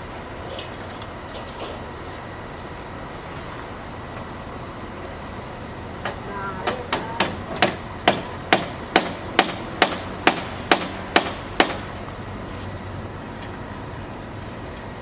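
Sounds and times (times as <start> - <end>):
hammer blows: 6.0 - 12.0.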